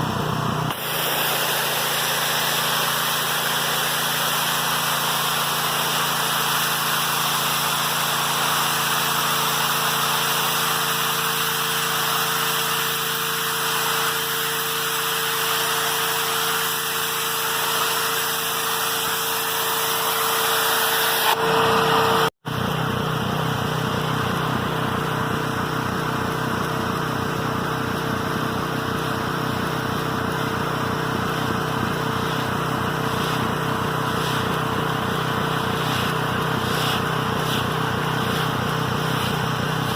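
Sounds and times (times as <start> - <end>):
pressure washer and wet-vac humming: 0.0 - 39.9.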